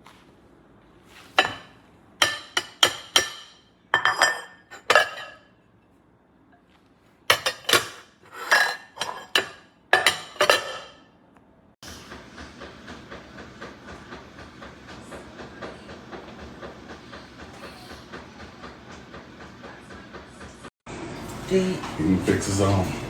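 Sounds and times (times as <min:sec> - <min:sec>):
ceramic bowls clinking: 0:01.4 - 0:05.5, 0:07.3 - 0:11.1.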